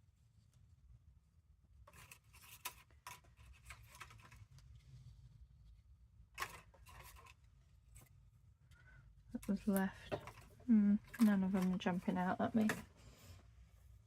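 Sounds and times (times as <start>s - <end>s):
paper rustling and crinkling: 1.8s - 5.1s, 6.3s - 8.2s, 9.4s - 13.2s.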